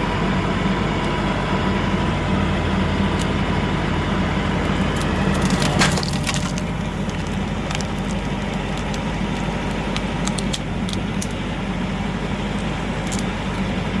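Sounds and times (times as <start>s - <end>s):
tractor engine running: 0.0s - 14.0s
log cracking and splintering: 4.2s - 11.6s, 12.5s - 14.0s.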